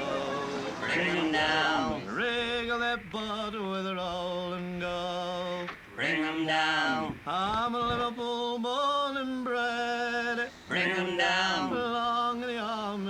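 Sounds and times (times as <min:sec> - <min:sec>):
man singing sea shanty: 0:00.0 - 0:13.0.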